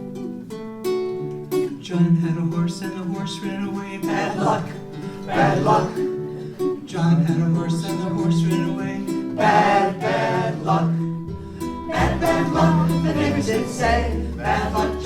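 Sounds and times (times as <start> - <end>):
person singing: 1.6 - 11.2, 11.8 - 15.0
plucked strings playing chords: 8.1 - 15.0.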